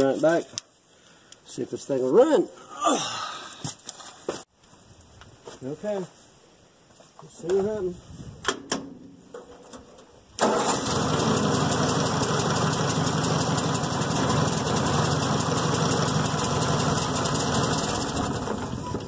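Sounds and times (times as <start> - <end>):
tractor engine starting and idling: 10.4 - 19.0.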